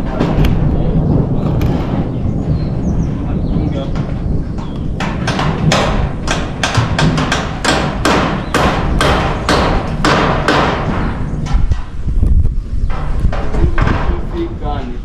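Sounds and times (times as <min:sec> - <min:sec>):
hammer on metal roofing: 0:00.0 - 0:00.9, 0:03.7 - 0:12.0, 0:12.9 - 0:14.5.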